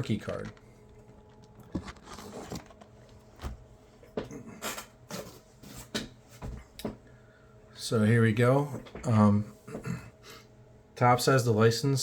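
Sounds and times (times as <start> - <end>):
packaging rustling: 0.0 - 3.7.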